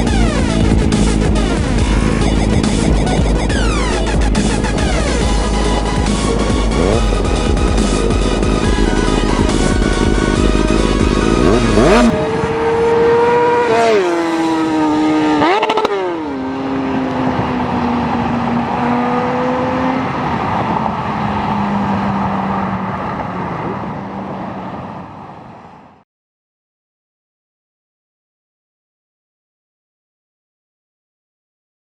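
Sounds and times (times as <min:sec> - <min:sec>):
music: 0:00.0 - 0:12.1
high-revving engine: 0:00.0 - 0:25.5.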